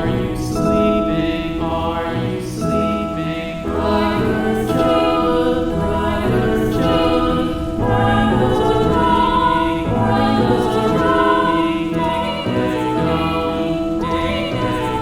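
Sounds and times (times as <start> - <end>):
calm relaxation music: 0.0 - 15.0.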